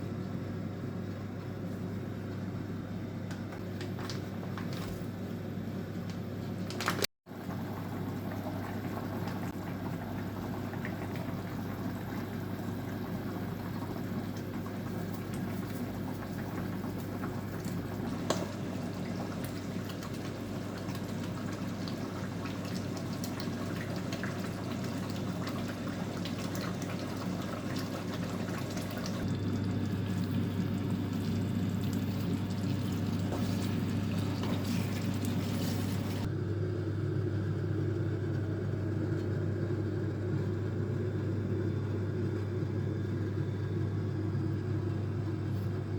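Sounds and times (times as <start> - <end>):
liquid sloshing and bubbling: 6.6 - 36.3
steady low hum: 7.4 - 45.9.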